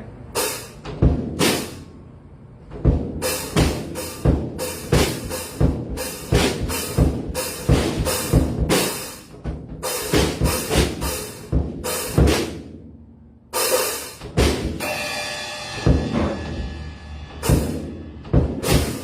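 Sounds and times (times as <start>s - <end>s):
snare strikes: 0.4s - 1.9s
bass drum: 2.7s - 12.6s, 14.2s - 14.9s, 15.7s - 19.0s
cymbals ringing: 13.6s - 19.0s.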